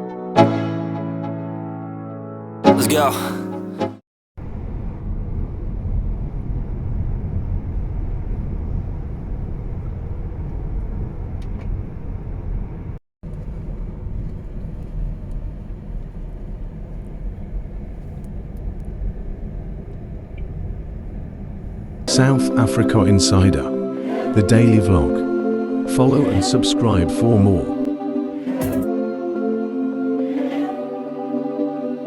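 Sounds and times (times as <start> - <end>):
moving vehicle rumble: 4.4 - 22.1.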